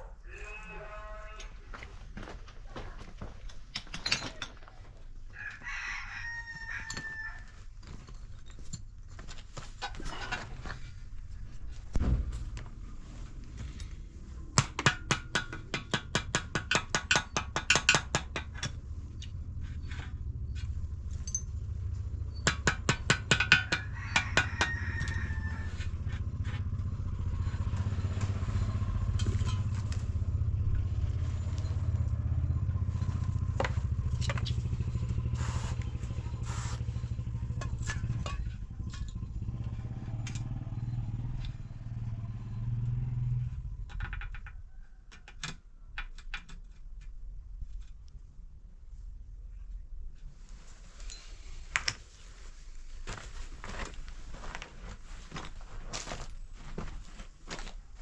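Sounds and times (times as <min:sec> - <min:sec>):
engine humming: 0:18.4 - 0:44.4
sharp clattering knocks: 0:22.3 - 0:24.8.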